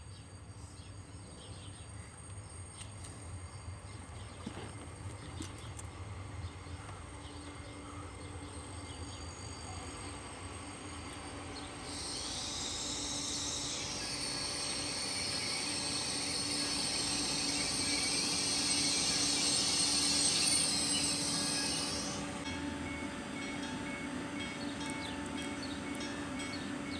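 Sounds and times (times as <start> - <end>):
train approaching: 0.0 - 26.9
high-pitched squealing: 11.8 - 22.4.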